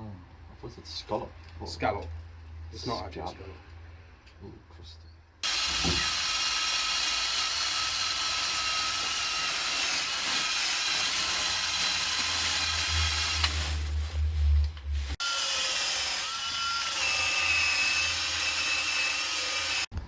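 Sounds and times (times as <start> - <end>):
power drill whining: 5.4 - 13.9, 15.2 - 19.9.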